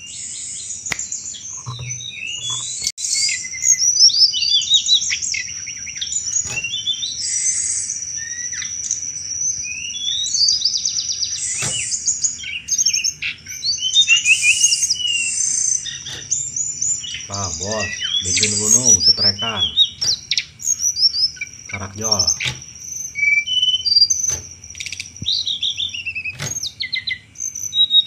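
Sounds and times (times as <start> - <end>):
songbird singing high chirps: 0.0 - 28.0
thin held whistle: 14.0 - 16.4.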